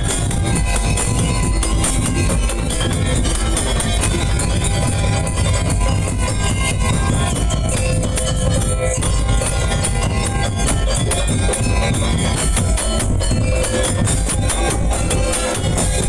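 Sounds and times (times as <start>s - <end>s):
drums: 0.0s - 16.0s
jingling percussion: 0.0s - 16.0s
percussion street band: 0.0s - 16.0s.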